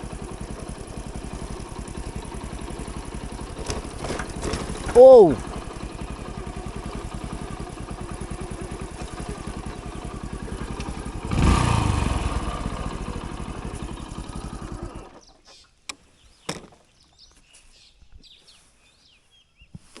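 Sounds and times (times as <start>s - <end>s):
motorcycle engine running: 0.0s - 15.4s.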